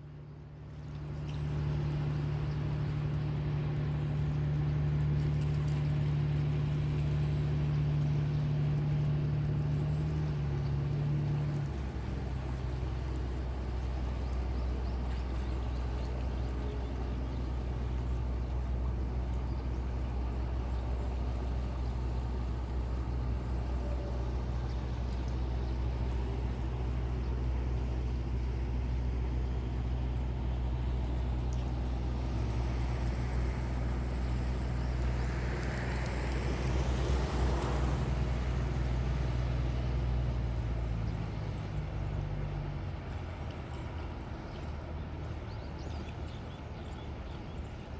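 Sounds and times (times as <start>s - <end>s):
engine droning: 0.0s - 47.9s.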